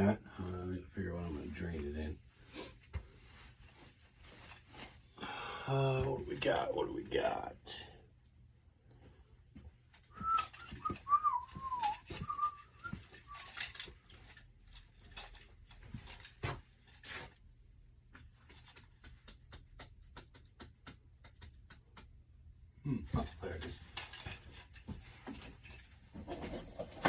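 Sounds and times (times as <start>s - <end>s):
man whistling: 10.1s - 13.6s
objects clattering and knocking: 10.2s - 17.4s, 23.0s - 27.0s.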